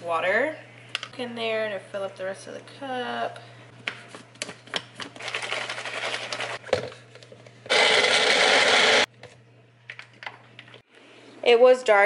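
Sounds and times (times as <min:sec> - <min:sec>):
ingredients clattering in blender cup: 0:05.1 - 0:07.0
blender running loudly: 0:07.7 - 0:09.1.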